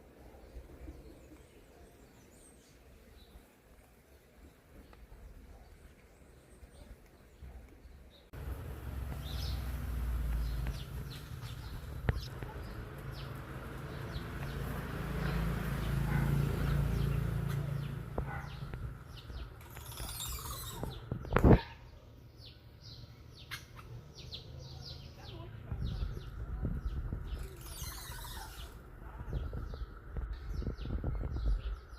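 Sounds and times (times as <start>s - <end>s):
birds chirping: 0.0s - 31.9s.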